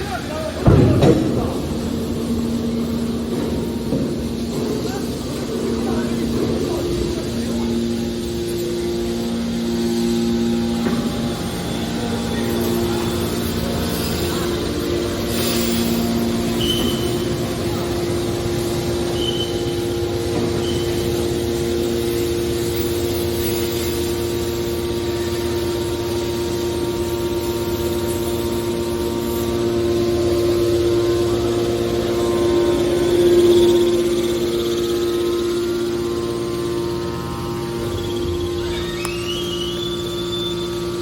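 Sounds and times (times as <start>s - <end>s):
hydraulic baler humming: 0.0s - 41.0s
short high squeaks: 16.6s - 17.3s, 38.0s - 41.0s.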